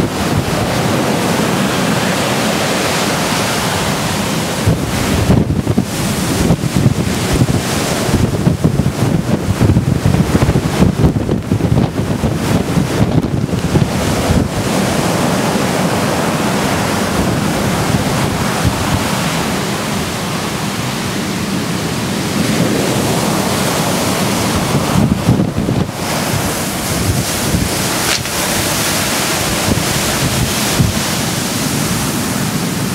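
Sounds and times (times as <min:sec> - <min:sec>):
surf washing in: 0:00.0 - 0:32.9
wind buffeting microphone: 0:00.0 - 0:32.9.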